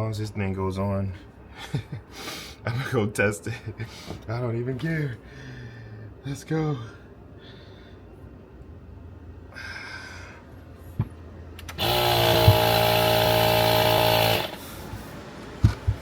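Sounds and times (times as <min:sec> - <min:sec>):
air compressor buzzing hiss: 0:11.7 - 0:14.9.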